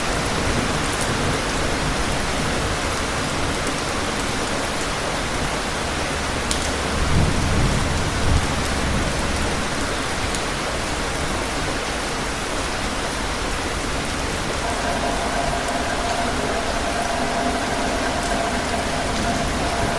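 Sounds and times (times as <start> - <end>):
steady rain falling: 0.0 - 19.9
thunder rumbling: 14.6 - 19.9.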